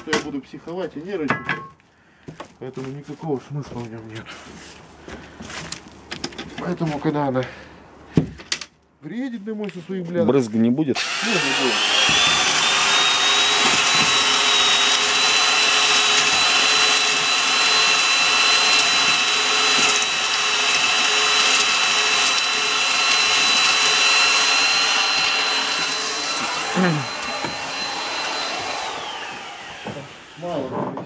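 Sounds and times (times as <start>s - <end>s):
electric drill mixing mortar: 11.0s - 30.8s.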